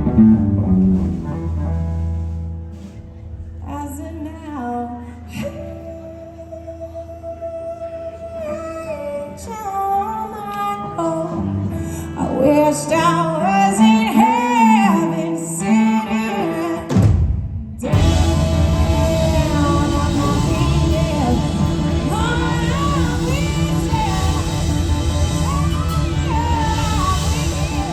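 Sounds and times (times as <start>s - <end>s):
blues-rock band playing: 0.0s - 3.2s, 17.9s - 27.9s
woman singing: 3.6s - 17.0s, 17.8s - 27.9s.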